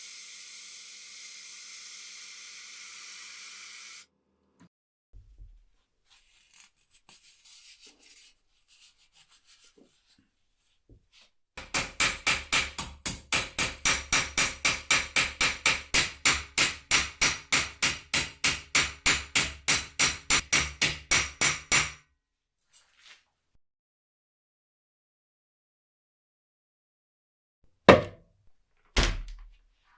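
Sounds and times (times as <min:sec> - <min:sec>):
hand tool scraping strokes: 0:06.1 - 0:10.2.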